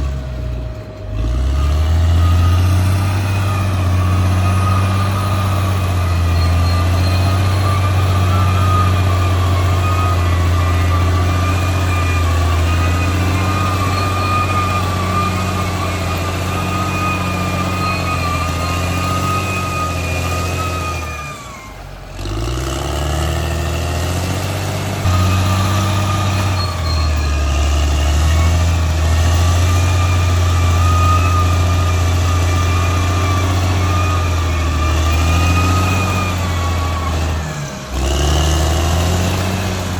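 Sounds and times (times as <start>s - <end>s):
high wavering whine: 0.0s - 21.8s
bulldozer diesel engine running: 0.0s - 39.9s.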